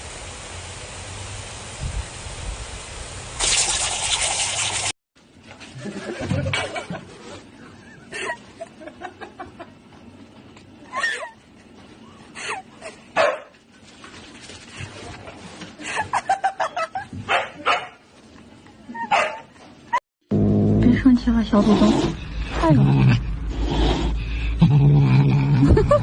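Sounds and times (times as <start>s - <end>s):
dog barking and whining: 19.0s - 19.5s.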